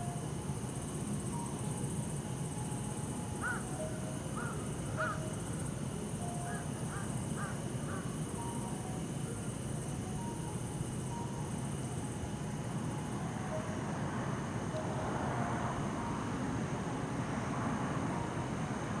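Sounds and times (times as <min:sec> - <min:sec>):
bell crickets trilling: 0:00.0 - 0:19.0
distant city traffic hum: 0:00.0 - 0:19.0.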